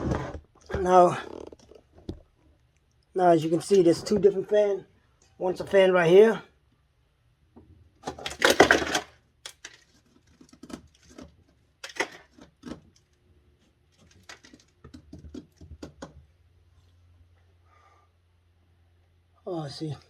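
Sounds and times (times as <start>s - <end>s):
clicks and knocks on plastic panels: 7.6s - 13.2s, 13.9s - 16.3s.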